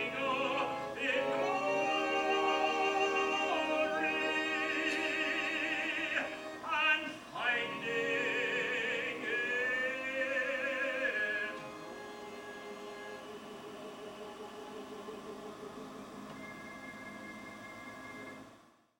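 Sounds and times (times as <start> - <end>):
classical solo singing with vibrato: 0.0 - 15.3.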